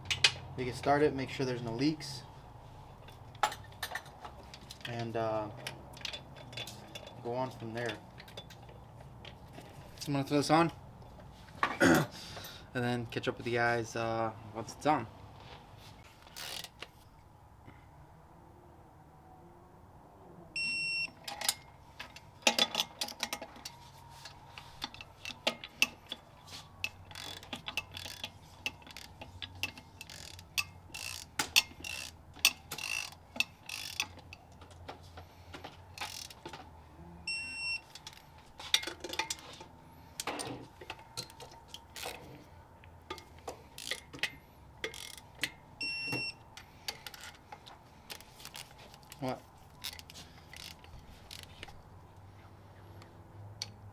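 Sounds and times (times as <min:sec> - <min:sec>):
metal clinks and knocks: 0:03.0 - 0:05.0, 0:05.6 - 0:09.8, 0:21.2 - 0:36.8, 0:37.9 - 0:42.4
ratchet clicks: 0:16.3 - 0:16.9, 0:26.8 - 0:34.4, 0:36.0 - 0:36.5, 0:43.1 - 0:45.5, 0:49.8 - 0:51.7.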